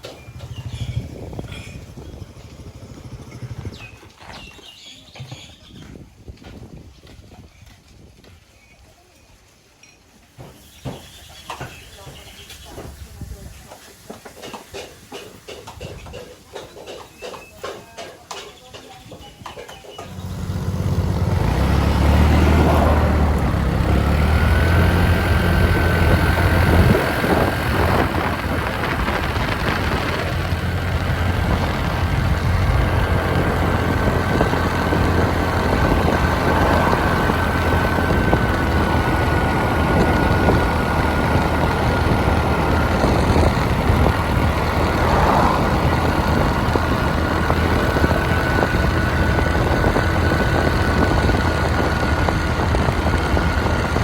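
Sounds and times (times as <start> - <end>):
motorbike engine running: 0.0 - 4.5, 20.0 - 54.0.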